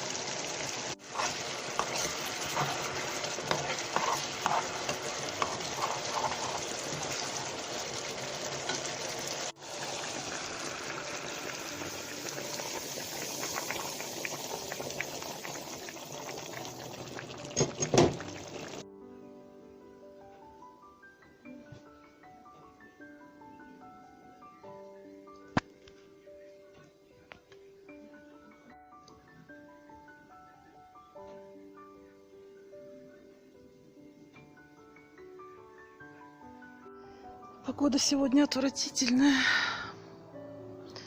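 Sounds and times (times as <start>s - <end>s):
food sizzling in a pan: 0.0s - 18.8s
stirring clicks: 1.0s - 7.2s.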